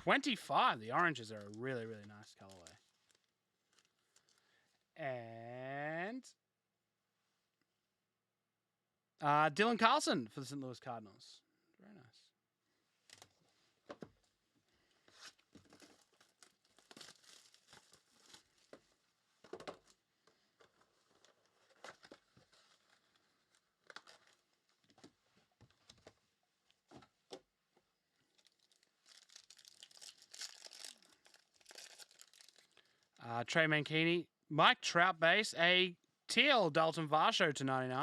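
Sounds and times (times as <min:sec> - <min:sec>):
foil pack crinkling and tearing: 0:00.9 - 0:04.4, 0:15.2 - 0:18.8, 0:20.6 - 0:24.9, 0:28.3 - 0:33.2.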